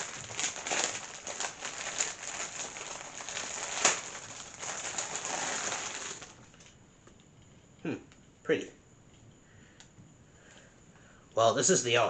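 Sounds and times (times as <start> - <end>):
packaging crinkling: 0.0 - 6.7.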